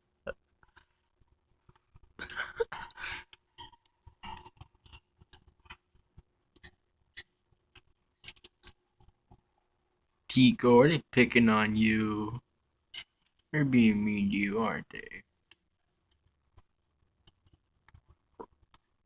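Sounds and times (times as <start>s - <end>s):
birds pecking and cracking seed: 3.2s - 9.4s.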